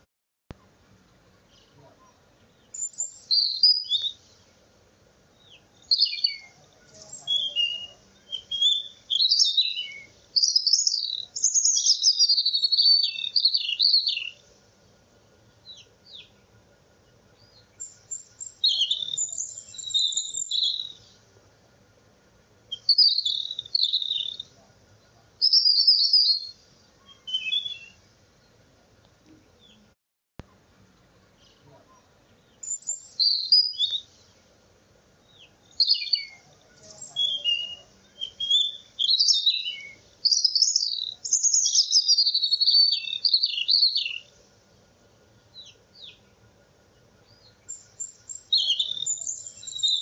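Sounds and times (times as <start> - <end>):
small bird chirping and singing: 2.4 - 4.6, 5.4 - 14.4, 17.1 - 21.2, 22.7 - 24.5, 25.4 - 28.5, 31.4 - 34.4, 35.2 - 44.3, 47.2 - 50.0.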